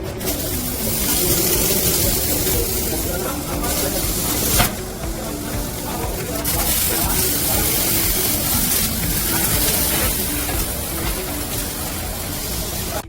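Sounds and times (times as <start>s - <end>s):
background music: 0.0s - 13.0s
welding hiss: 0.0s - 13.0s.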